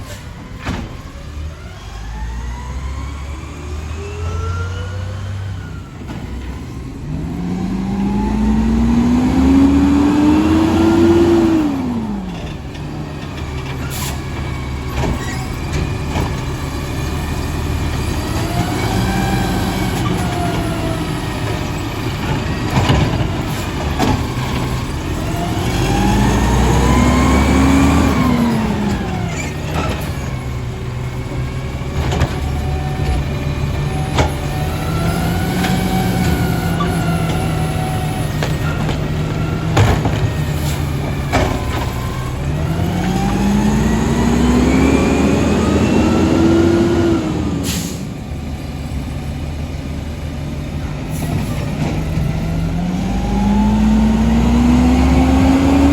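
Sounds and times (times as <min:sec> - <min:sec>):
diesel engine revving: 0:00.0 - 0:55.9.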